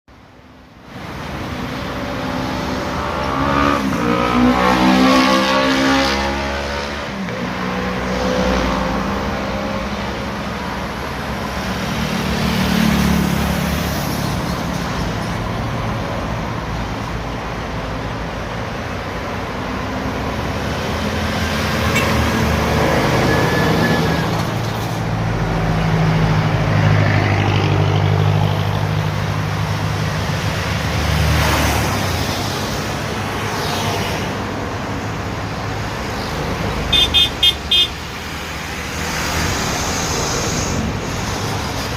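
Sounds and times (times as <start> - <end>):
road traffic noise: 0.1 - 41.9
short horn toots: 21.9 - 22.2, 36.9 - 38.0.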